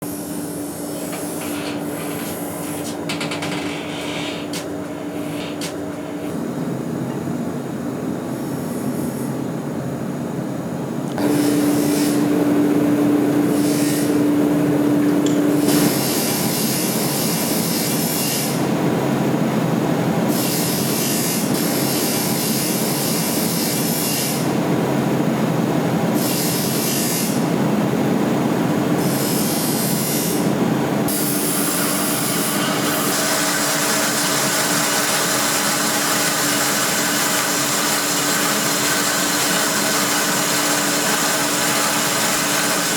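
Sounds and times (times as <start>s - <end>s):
power tool motor hum: 31.1s - 42.9s.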